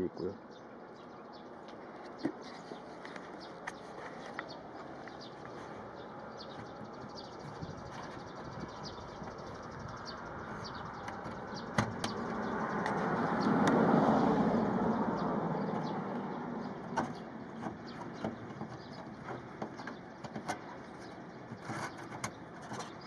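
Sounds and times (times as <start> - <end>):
outdoor background noise: 0.0 - 23.0
vehicle passing by: 9.6 - 17.6.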